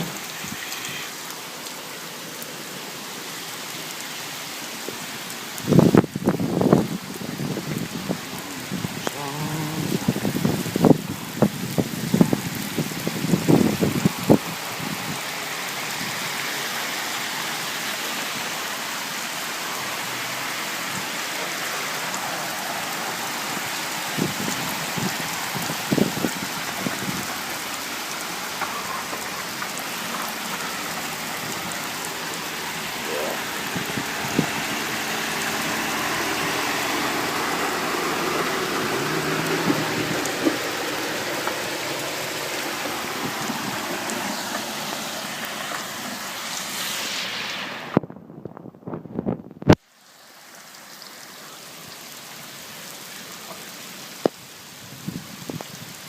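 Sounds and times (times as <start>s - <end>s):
heavy rain hissing: 0.0s - 48.3s, 48.9s - 56.0s.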